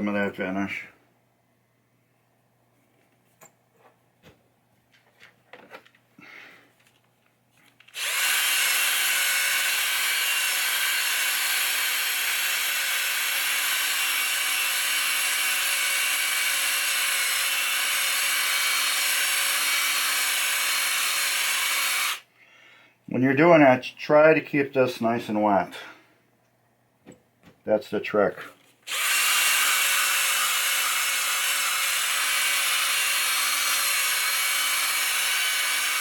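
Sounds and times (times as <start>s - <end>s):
power tool whining: 7.8s - 22.2s, 28.8s - 36.0s.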